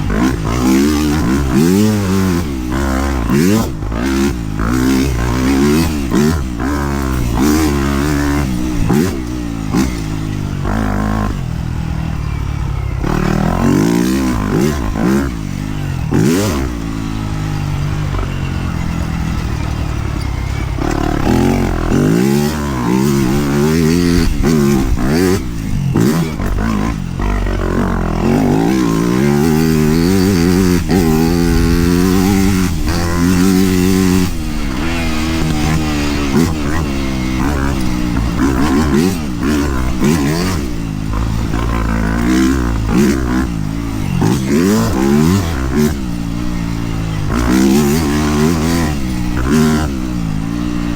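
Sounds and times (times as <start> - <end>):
dirt bike engine revving: 0.0 - 50.9
knocks and clatter from bike: 0.0 - 50.9.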